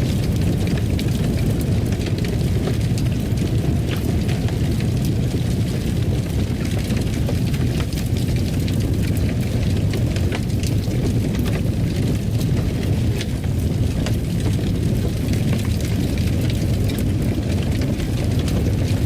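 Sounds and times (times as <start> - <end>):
fire popping and snapping: 0.0 - 19.0
fireplace fire rumbling: 0.0 - 19.0.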